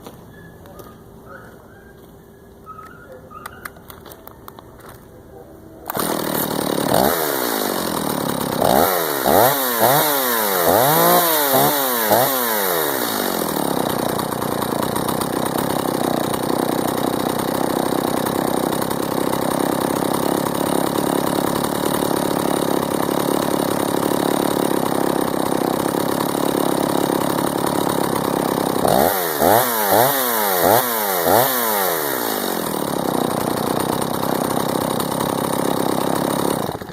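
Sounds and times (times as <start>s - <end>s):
chainsaw idling and revving: 5.8s - 36.9s.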